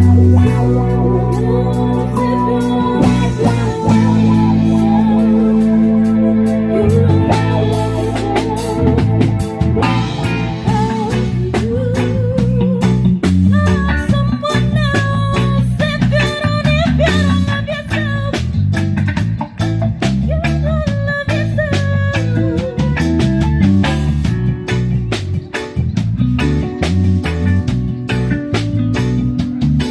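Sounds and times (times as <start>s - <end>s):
upbeat band music with guitar: 0.0s - 29.9s.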